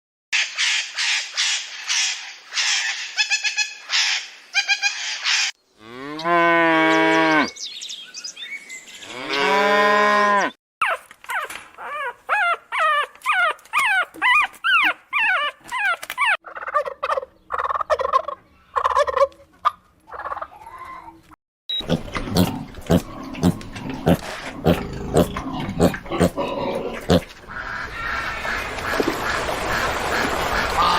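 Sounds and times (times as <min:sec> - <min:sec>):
cattle mooing: 0:09.1 - 0:10.5.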